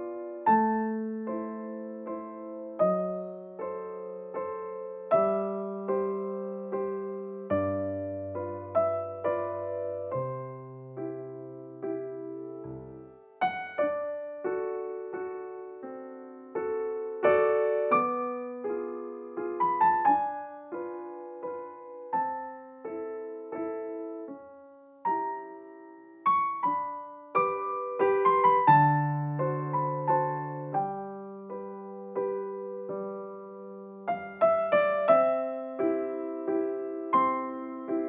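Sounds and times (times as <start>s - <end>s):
gentle piano music: 0.0s - 38.0s.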